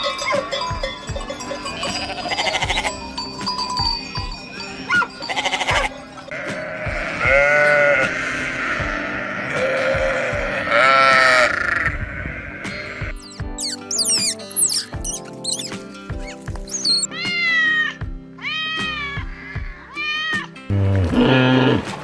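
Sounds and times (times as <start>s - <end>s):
sheep bleating: 1.6s - 3.0s, 4.8s - 13.2s.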